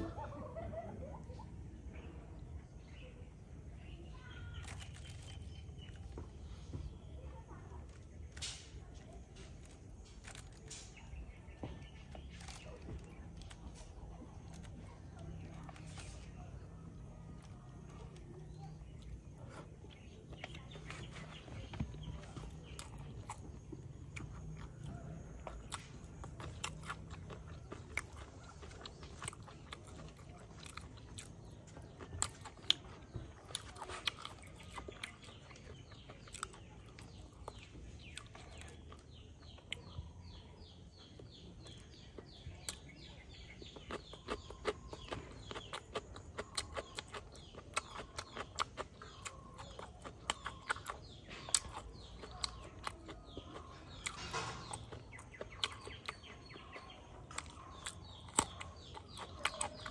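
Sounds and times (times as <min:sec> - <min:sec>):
person chewing with mouth clicks: 0:17.4 - 0:40.0, 0:41.7 - 0:59.9.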